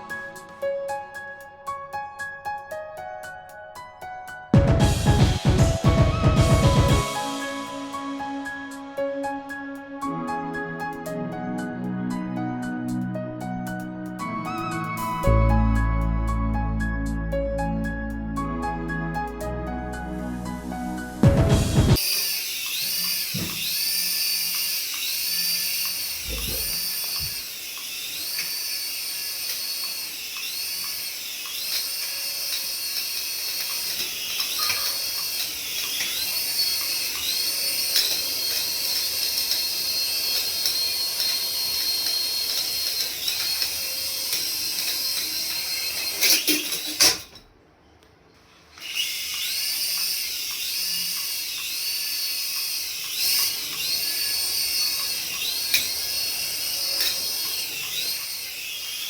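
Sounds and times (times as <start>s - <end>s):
small electric motor whine: 21.9s - 47.4s, 48.7s - 59.0s.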